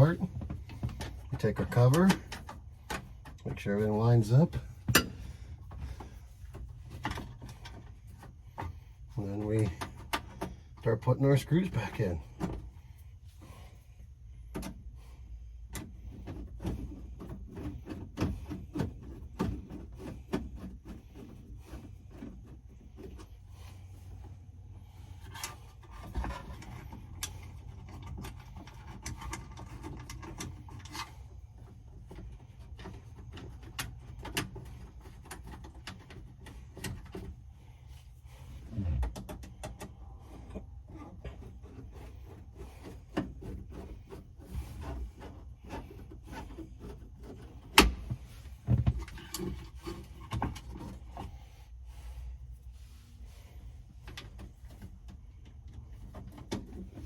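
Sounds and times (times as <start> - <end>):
steady low rumble: 37.3 - 45.7.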